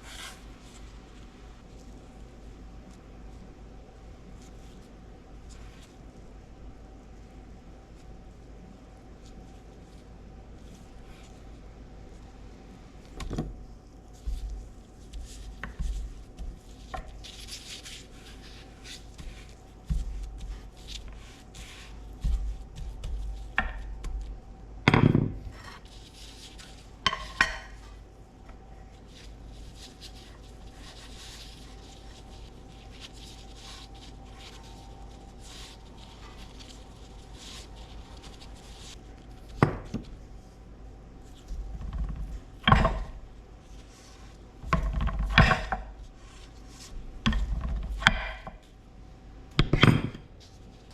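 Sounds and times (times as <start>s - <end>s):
faint steady hum: 0.0s - 50.9s
kitchenware knocks and clinks: 24.9s - 25.4s.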